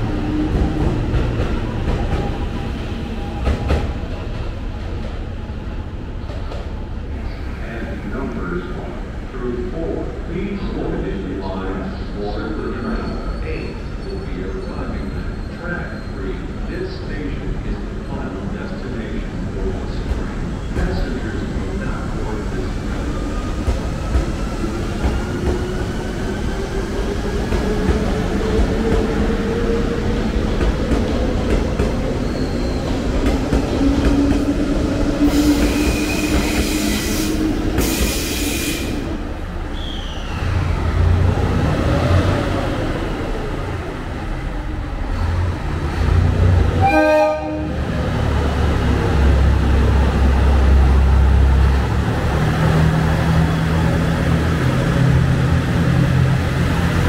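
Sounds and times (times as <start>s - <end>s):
train rumble: 0.0s - 57.0s
air hiss: 35.3s - 39.0s
train horn toot: 46.8s - 47.8s.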